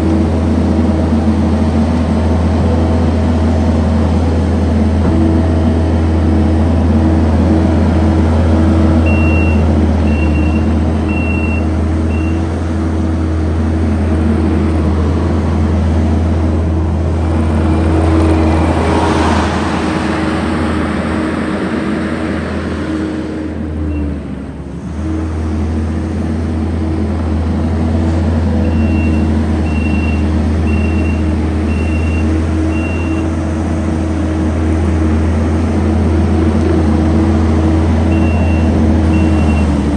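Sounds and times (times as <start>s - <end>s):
diesel engine running: 0.0s - 39.9s
backup alarm beeping: 9.1s - 12.4s, 28.7s - 33.3s, 38.1s - 39.7s
broad rush of noise: 11.9s - 29.6s.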